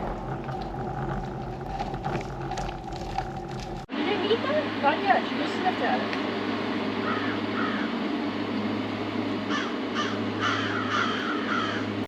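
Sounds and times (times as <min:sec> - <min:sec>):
steady low hum: 0:00.0 - 0:03.9
crows cawing: 0:07.0 - 0:07.9, 0:09.5 - 0:11.9.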